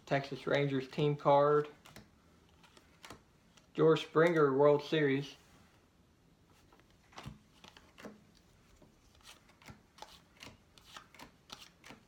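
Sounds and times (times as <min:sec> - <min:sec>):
cards flicking and rustling: 0:00.8 - 0:04.6, 0:06.6 - 0:12.0.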